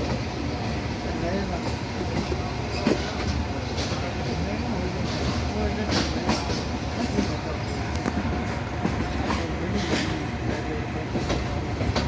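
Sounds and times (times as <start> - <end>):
train carriages rumbling: 0.0 - 12.0.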